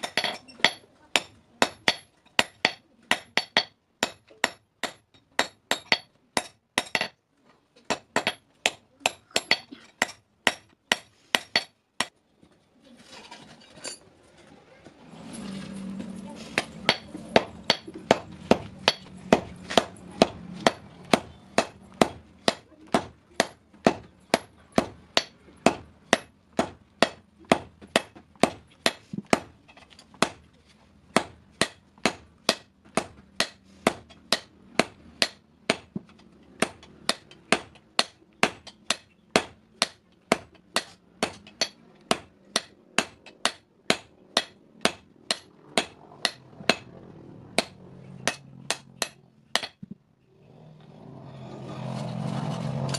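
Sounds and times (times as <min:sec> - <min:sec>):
hammer striking steel on anvil: 0:00.0 - 0:07.2, 0:07.9 - 0:12.1, 0:16.5 - 0:29.5, 0:31.2 - 0:35.9, 0:36.6 - 0:46.9, 0:47.6 - 0:49.8.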